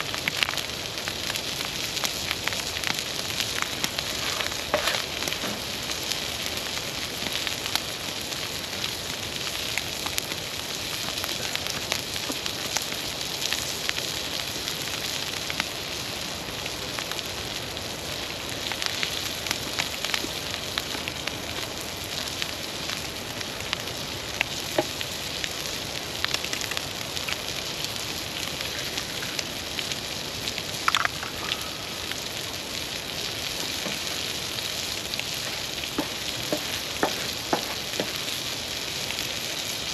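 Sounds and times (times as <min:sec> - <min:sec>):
campfire crackling and hissing: 0:00.0 - 0:39.9
sharp fire pops: 0:26.2 - 0:27.6.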